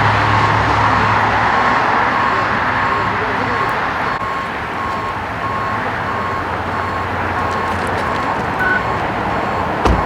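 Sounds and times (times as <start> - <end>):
idling engines and traffic: 0.0 - 10.0
vehicle warning beeper: 0.1 - 10.0
dull thump: 9.8 - 10.0.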